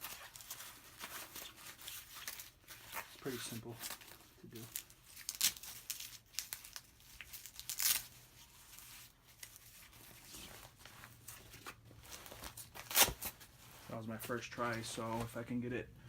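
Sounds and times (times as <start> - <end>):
hook-and-loop fastener ripping: 0.0 - 8.2, 12.2 - 13.4
fabric rustling: 7.4 - 15.4.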